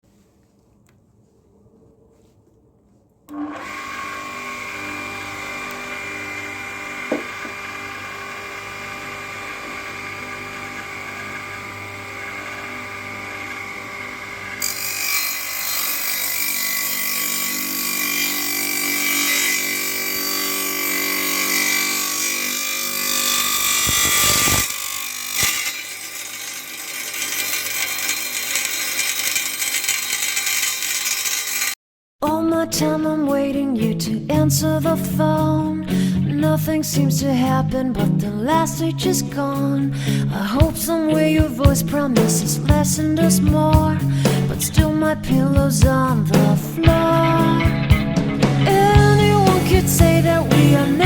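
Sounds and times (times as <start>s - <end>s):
saw blade cutting wood: 3.3s - 31.8s, 44.1s - 44.8s, 48.4s - 51.0s
table saw whine: 3.3s - 31.8s, 47.1s - 51.0s.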